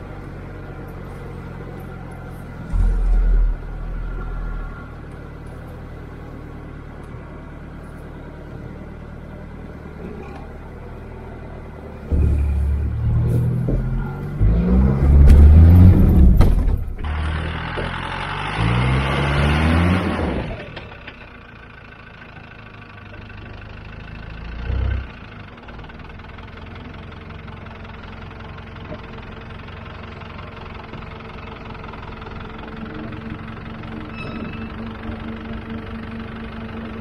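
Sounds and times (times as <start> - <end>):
off-road engine revving: 0.0 - 8.0, 9.0 - 21.2, 24.0 - 25.5
heavy thump: 2.6 - 5.0, 12.0 - 17.0.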